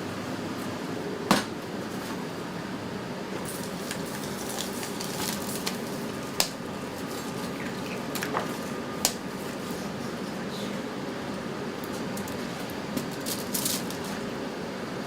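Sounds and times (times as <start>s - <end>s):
kitchen hiss and hum: 0.0s - 15.0s
utensils and containers clinking: 3.5s - 8.8s, 12.0s - 14.2s.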